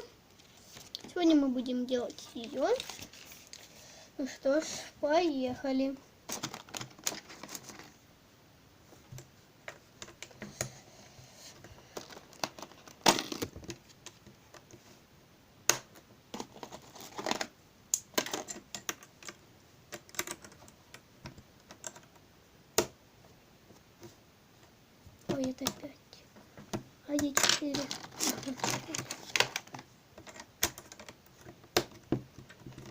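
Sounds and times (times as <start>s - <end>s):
small plastic parts clicking: 15.7s - 22.2s, 27.2s - 32.9s.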